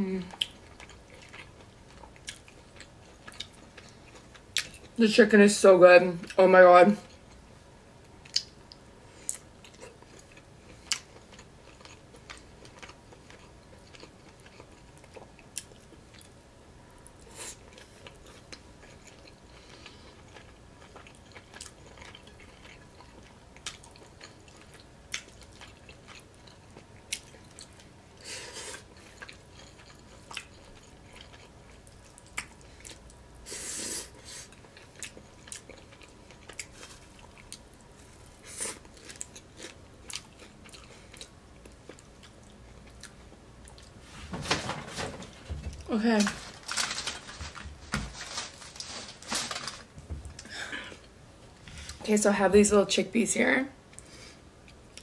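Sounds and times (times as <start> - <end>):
chewing and mouth sounds: 0.3 - 5.0, 8.2 - 16.4, 17.1 - 33.2, 34.2 - 44.0.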